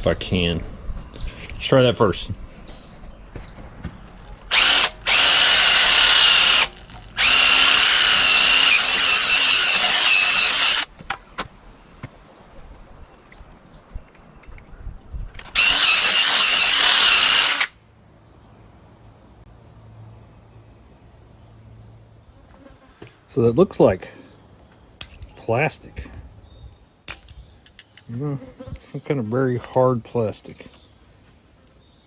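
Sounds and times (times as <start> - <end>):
electric drill wire brush whining: 4.5 - 10.9, 15.4 - 17.8.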